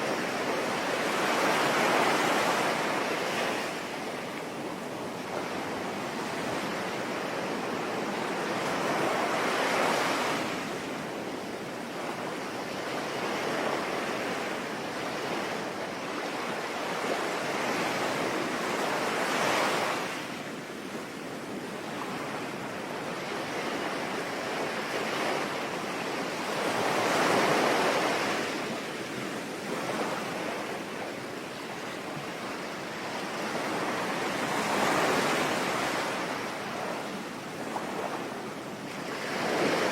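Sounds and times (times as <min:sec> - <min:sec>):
sea waves breaking: 0:21.7 - 0:39.9.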